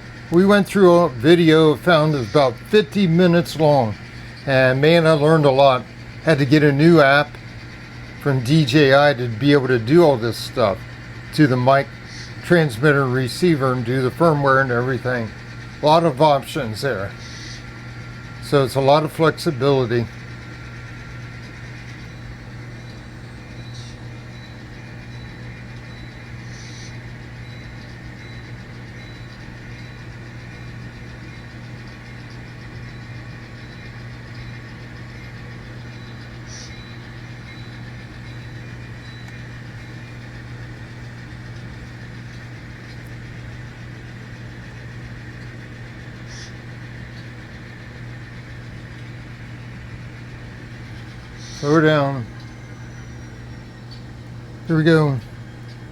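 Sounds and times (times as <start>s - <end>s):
model train hum: 0.0s - 55.9s.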